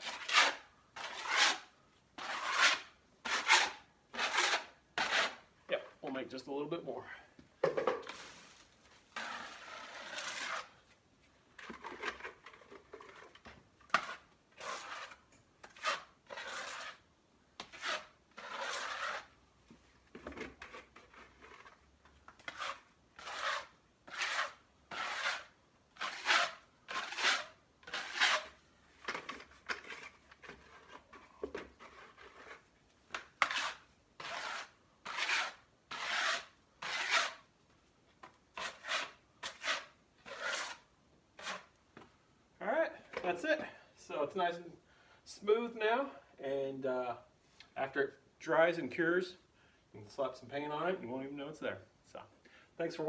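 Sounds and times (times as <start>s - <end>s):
hand tool scraping cement: 0.0s - 5.5s, 9.1s - 10.8s, 11.6s - 19.3s, 20.2s - 37.4s, 38.6s - 41.7s.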